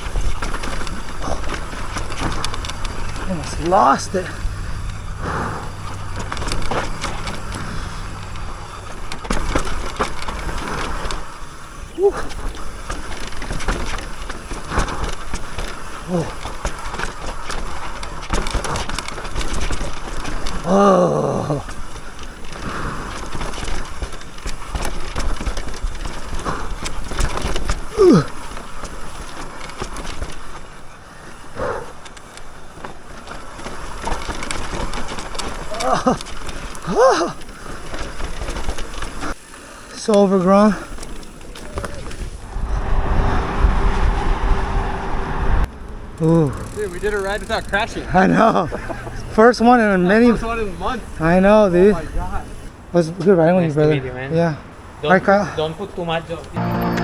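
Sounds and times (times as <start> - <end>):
bike rattling and clicking: 0.0 - 56.6
tyres rolling over dirt: 0.0 - 57.0
person exclaiming: 12.0 - 12.2, 20.7 - 21.6, 36.9 - 37.4
wind buffeting microphone: 40.8 - 52.9
wind rush: 41.9 - 46.2.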